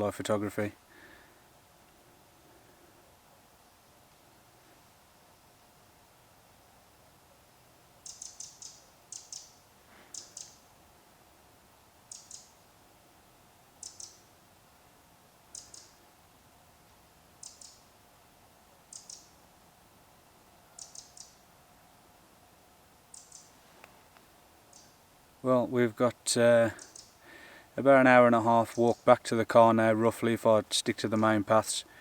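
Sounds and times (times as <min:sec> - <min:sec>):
faint steady hum: 0:00.0 - 0:32.0
songbird clicking calls: 0:08.0 - 0:10.6, 0:12.1 - 0:12.5, 0:13.8 - 0:14.2, 0:15.5 - 0:16.0, 0:17.4 - 0:17.9, 0:18.9 - 0:19.3, 0:20.8 - 0:21.4, 0:23.1 - 0:25.0, 0:26.8 - 0:27.2.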